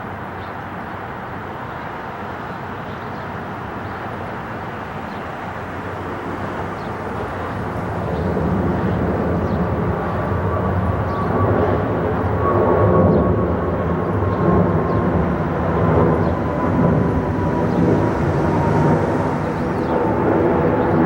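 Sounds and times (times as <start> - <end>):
jet engines roaring: 3.4 - 21.0
thin steady whine: 13.3 - 21.0.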